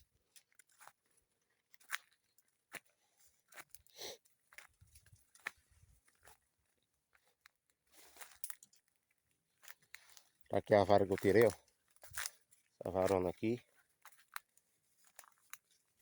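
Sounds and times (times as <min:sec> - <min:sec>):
footsteps through dry leaves: 0:07.9 - 0:08.6.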